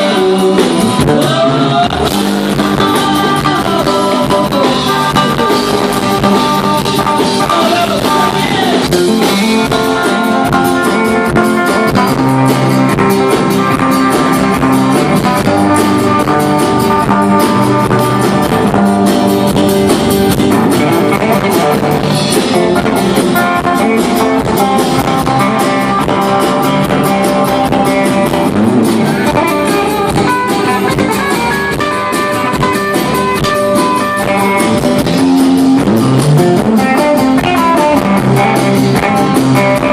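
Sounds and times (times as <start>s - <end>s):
drum kit beat: 0.0s - 39.9s
electric guitar: 0.0s - 39.9s
rock band playing: 0.0s - 39.9s.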